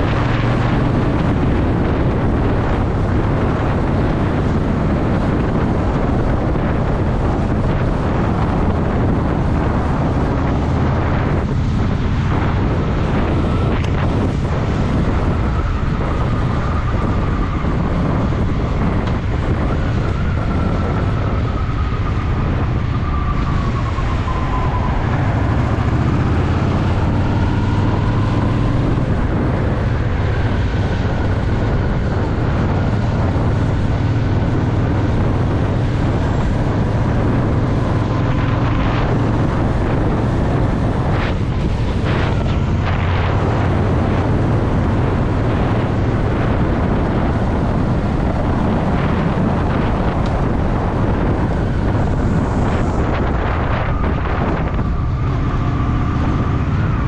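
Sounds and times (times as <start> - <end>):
motorcycle engine rumbling: 0.0 - 57.0
wind noise on microphone: 0.0 - 57.0.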